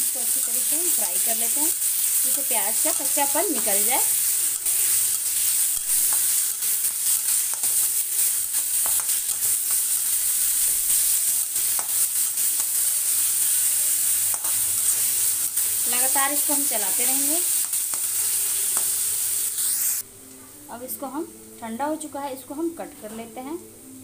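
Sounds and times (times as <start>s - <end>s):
paste sizzling in hot oil: 0.0s - 20.0s
spatula clicking against pan: 5.8s - 7.8s, 8.8s - 10.0s, 14.3s - 14.6s.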